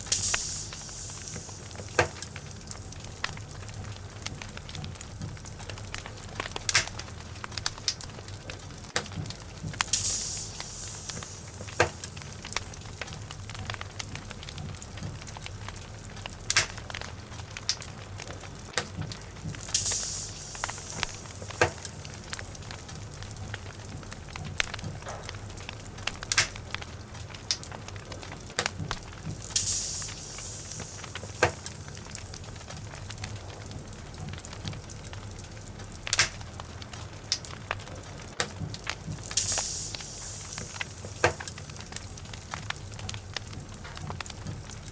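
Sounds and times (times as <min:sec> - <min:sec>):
brief hiss from fire: 0:00.0 - 0:04.7, 0:09.6 - 0:16.8, 0:19.4 - 0:26.6, 0:28.6 - 0:35.5, 0:38.9 - 0:44.9
fire rumbling in fireplace: 0:00.0 - 0:44.9
wood crackling and popping: 0:00.0 - 0:44.9.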